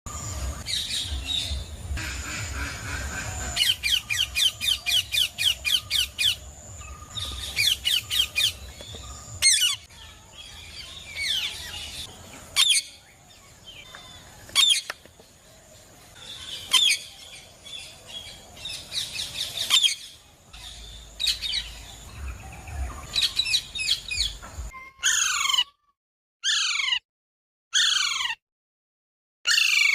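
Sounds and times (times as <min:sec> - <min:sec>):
parrot chirping and squawking: 0:02.0 - 0:06.4, 0:24.9 - 0:25.8, 0:26.4 - 0:27.0, 0:27.8 - 0:28.4, 0:29.5 - 0:29.9.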